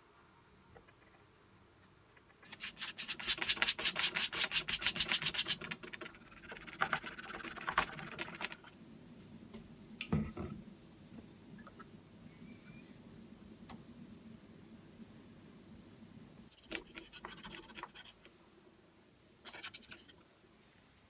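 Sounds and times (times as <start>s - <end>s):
rapid hand rubbing strokes: 2.5s - 8.1s.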